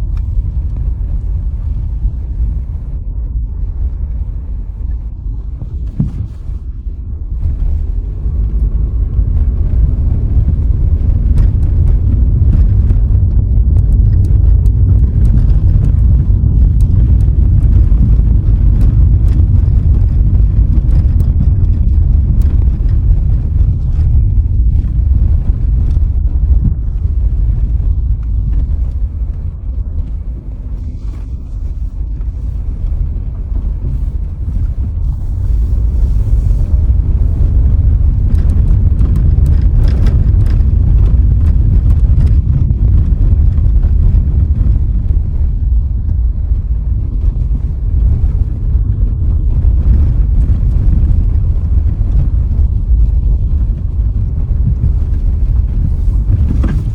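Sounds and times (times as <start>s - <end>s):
car driving on road: 0.0s - 56.9s.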